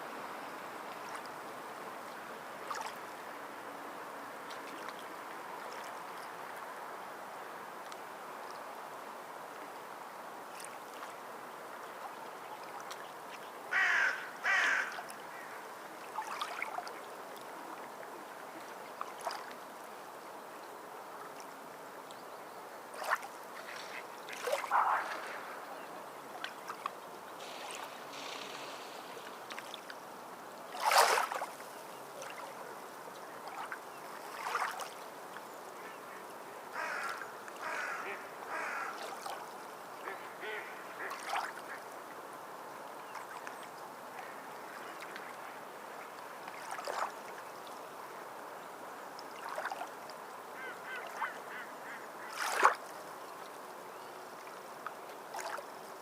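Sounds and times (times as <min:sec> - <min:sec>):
birds calling harshly: 0:13.7 - 0:15.5
water washing: 0:23.9 - 0:30.0.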